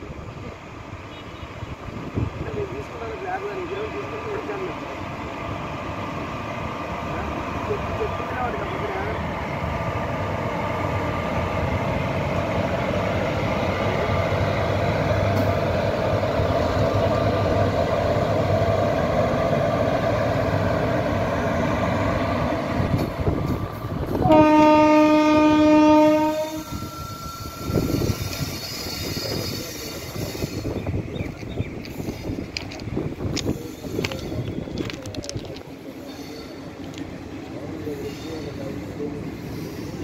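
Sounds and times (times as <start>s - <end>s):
train rumbling past: 0.0s - 40.0s
train horn blast: 24.2s - 27.9s.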